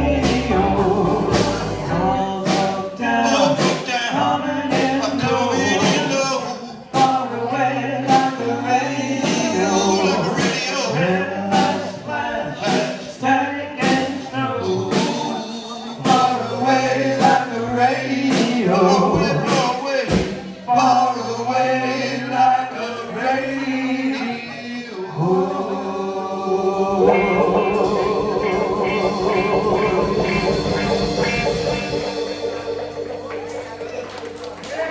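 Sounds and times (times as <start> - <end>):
rock band playing: 0.0 - 8.6, 13.8 - 20.6, 25.5 - 34.9
drums: 0.0 - 23.6, 25.1 - 34.9
man singing: 0.0 - 32.5.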